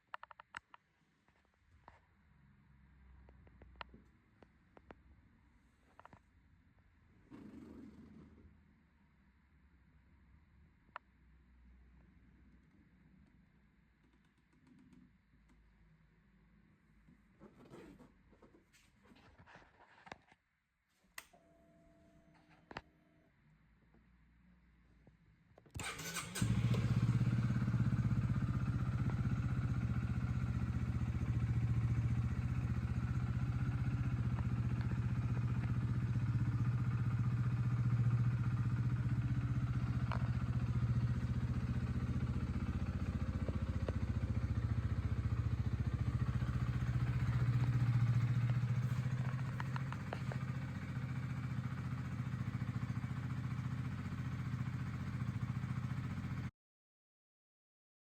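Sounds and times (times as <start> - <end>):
motorcycle engine idling: 25.8 - 56.5.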